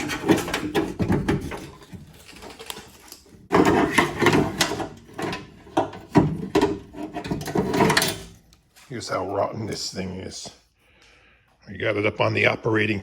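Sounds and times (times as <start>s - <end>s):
car door parts clattering: 3.5s - 8.4s.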